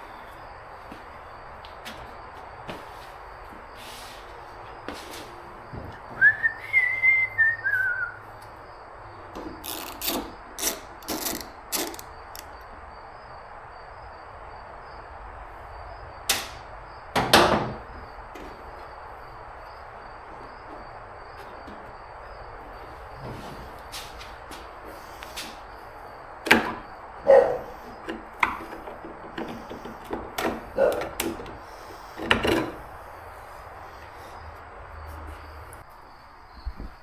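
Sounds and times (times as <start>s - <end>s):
person whistling: 6.2s - 8.2s
rasping tearing noises: 9.6s - 12.6s.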